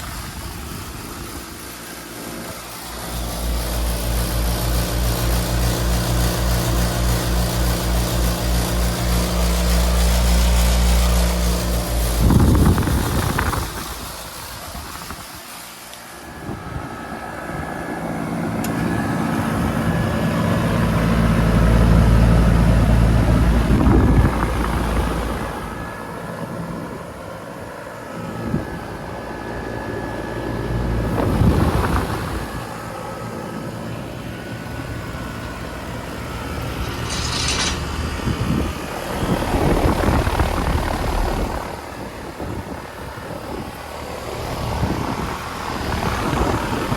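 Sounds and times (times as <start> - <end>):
compressor hum: 0.0 - 46.9
condenser fan tone: 0.0 - 46.9.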